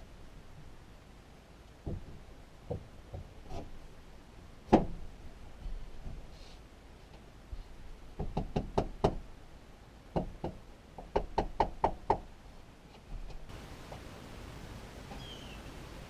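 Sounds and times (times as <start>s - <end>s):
wood knocking: 1.8s - 3.7s, 8.2s - 9.2s.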